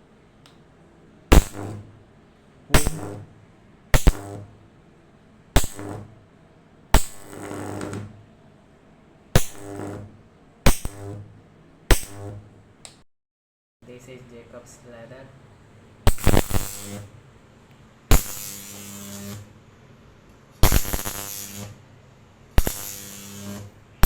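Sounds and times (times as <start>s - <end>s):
sharp spark cracks: 1.3s - 1.9s, 2.7s - 3.3s, 3.9s - 4.5s, 5.6s - 6.1s, 7.0s - 8.2s, 9.4s - 11.3s, 11.9s - 12.5s, 16.1s - 17.1s, 18.1s - 19.5s, 20.6s - 21.8s, 22.5s - 23.8s
electric arc buzzing: 1.3s - 2.0s, 2.7s - 4.6s, 5.6s - 6.2s, 6.9s - 8.3s, 9.4s - 12.6s, 16.1s - 17.2s, 18.1s - 19.6s, 20.6s - 21.9s, 22.5s - 24.0s.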